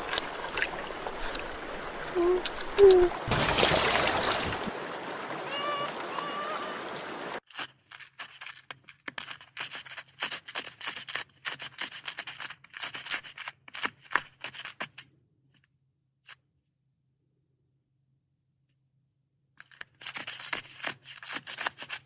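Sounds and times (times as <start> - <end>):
running water: 0.0 - 7.4.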